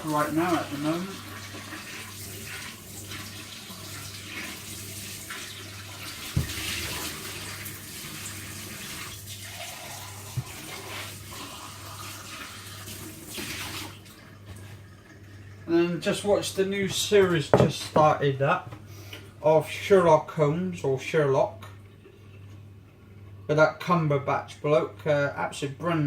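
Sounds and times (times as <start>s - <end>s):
water running from tap: 0.0s - 17.6s
knocks: 17.5s - 17.8s.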